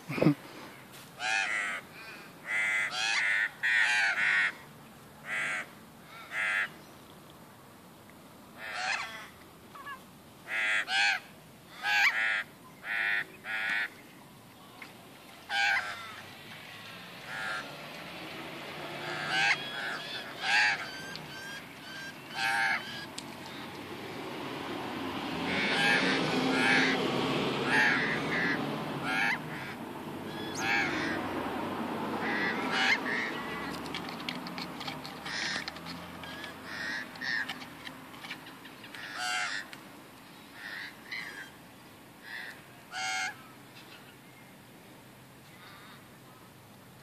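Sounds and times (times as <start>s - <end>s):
crows cawing: 1.2s - 4.6s, 5.2s - 6.8s, 8.6s - 13.9s, 15.5s - 16.2s, 17.3s - 17.7s, 18.9s - 23.6s, 25.5s - 27.0s, 27.6s - 31.3s, 32.2s - 33.8s, 35.2s - 37.6s, 38.9s - 39.7s, 40.6s - 41.6s, 42.2s - 43.4s, 45.6s - 46.0s.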